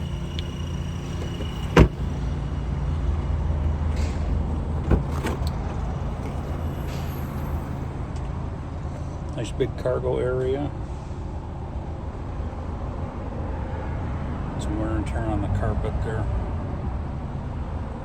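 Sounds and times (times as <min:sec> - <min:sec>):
car door shutting: 0:00.4 - 0:02.4, 0:03.9 - 0:07.7.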